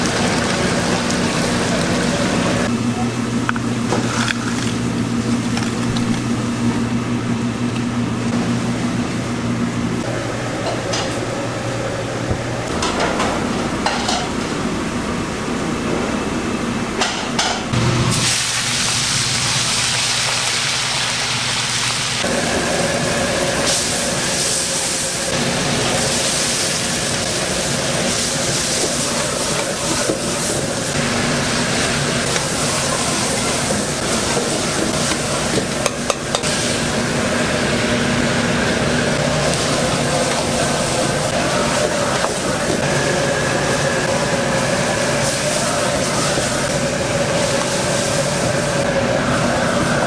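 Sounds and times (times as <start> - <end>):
roar of kitchen burner and extraction: 0.0 - 50.0
food sizzling in a wok: 17.8 - 50.0.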